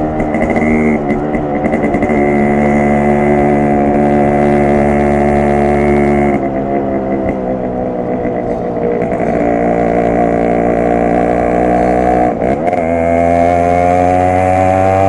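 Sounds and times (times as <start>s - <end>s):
two-stroke motorcycle engine running: 0.0s - 15.0s.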